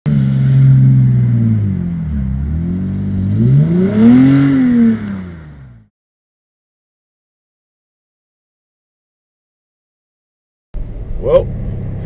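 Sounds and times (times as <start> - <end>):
car engine revving: 0.1 - 5.9, 10.8 - 12.0.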